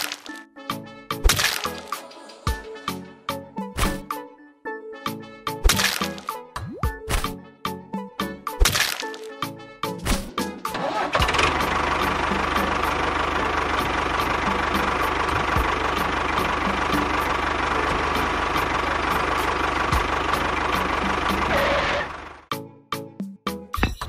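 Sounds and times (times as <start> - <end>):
small engine running: 0.0 - 0.4, 10.7 - 22.5.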